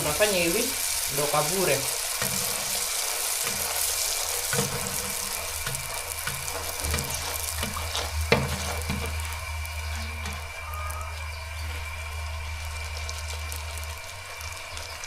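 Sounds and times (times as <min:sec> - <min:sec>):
dough sizzling in hot oil: 0:00.0 - 0:15.0.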